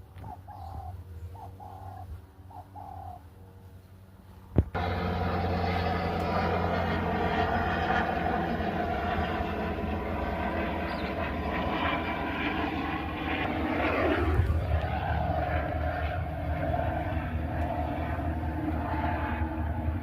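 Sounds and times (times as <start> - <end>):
engine drone: 0.0 - 20.0.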